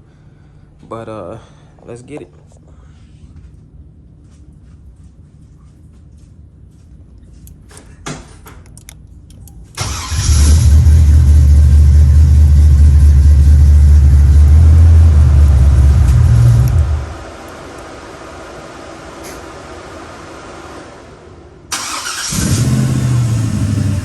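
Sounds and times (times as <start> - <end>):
car engine running: 9.8 - 18.0, 19.7 - 24.0.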